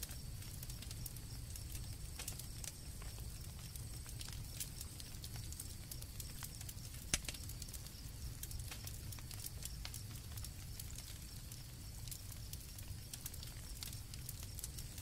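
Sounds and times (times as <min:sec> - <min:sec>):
campfire crackling: 0:00.0 - 0:15.0
crickets trilling: 0:00.0 - 0:15.0.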